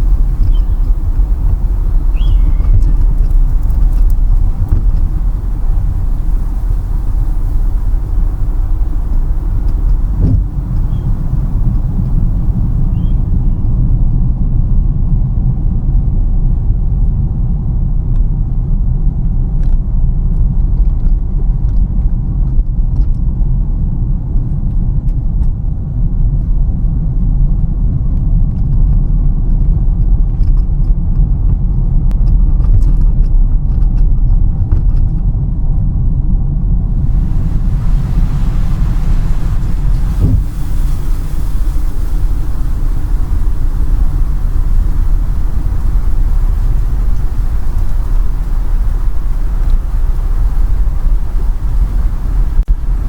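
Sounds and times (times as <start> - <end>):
faint light ticks: 0.0 - 13.5
bright hiss: 0.0 - 13.7, 36.9 - 53.0
car road rumble inside cabin: 0.0 - 13.8, 36.9 - 53.0.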